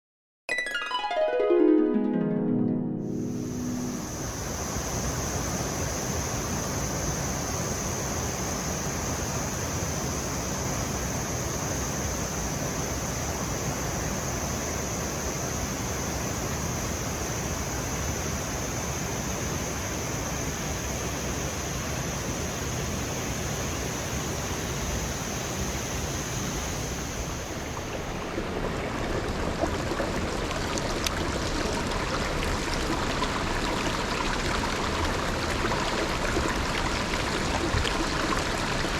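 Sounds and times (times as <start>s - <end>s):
high-pitched whine: 3.0s - 5.0s
rushing stream water: 3.4s - 38.9s.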